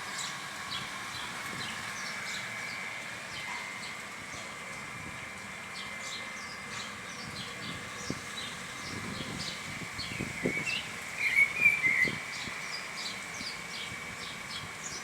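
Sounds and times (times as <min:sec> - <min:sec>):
birds chirping: 0:05.5 - 0:15.0.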